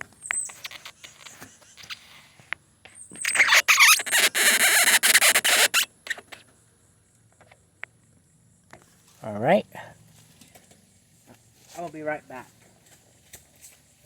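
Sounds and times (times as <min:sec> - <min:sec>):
short squeaks: 0:00.0 - 0:02.3, 0:02.9 - 0:06.4.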